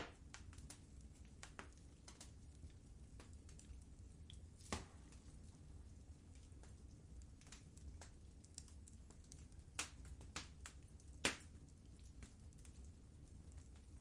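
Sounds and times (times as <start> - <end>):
faint low rumble: 0.0 - 14.0
wood fire crackling: 0.0 - 14.0.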